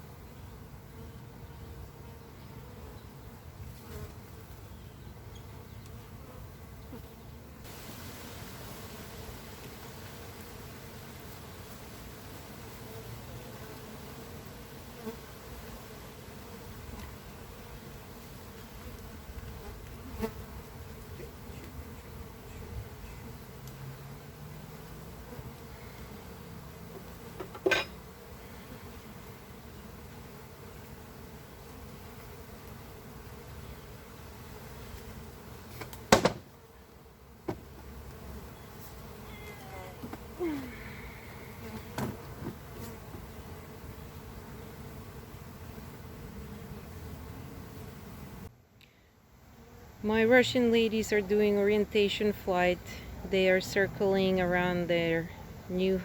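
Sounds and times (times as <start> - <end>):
honeybees buzzing: 0.0 - 48.5, 49.1 - 56.0
background hiss: 0.0 - 56.0
sharp knock: 36.1 - 36.4.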